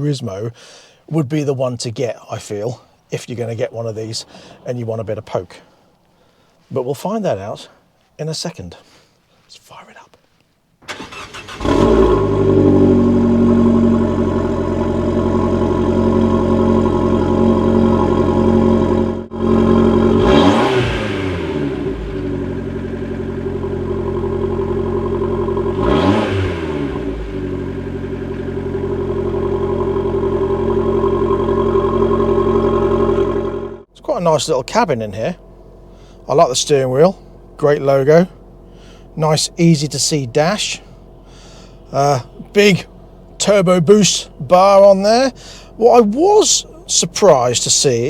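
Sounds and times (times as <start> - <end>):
car engine idling and revving: 10.9 - 48.0.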